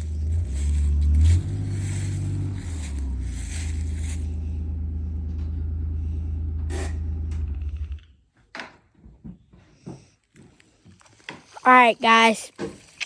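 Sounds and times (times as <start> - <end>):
engine idling: 0.0 - 8.1.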